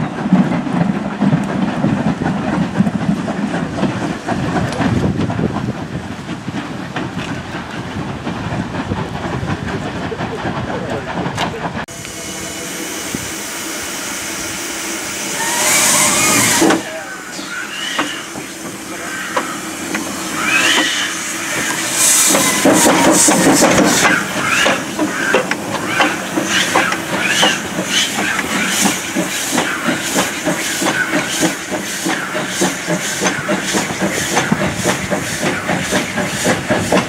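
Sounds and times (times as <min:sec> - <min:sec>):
locomotive steam hissing: 0:00.0 - 0:37.0
wheels clicking over rail joints: 0:17.9 - 0:37.0.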